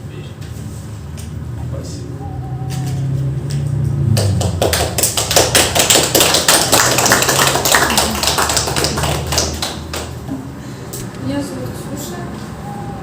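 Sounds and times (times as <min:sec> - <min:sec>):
small group clapping: 0:02.7 - 0:10.4.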